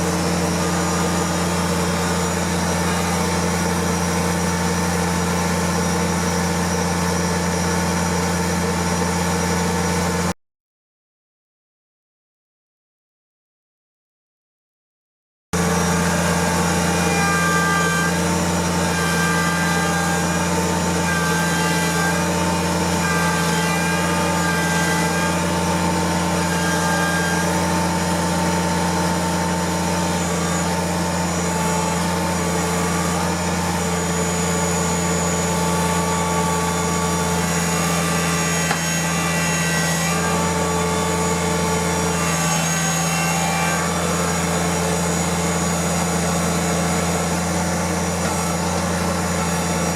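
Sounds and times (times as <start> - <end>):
tractor diesel engine humming: 0.0 - 10.3, 15.6 - 38.8, 43.9 - 49.9.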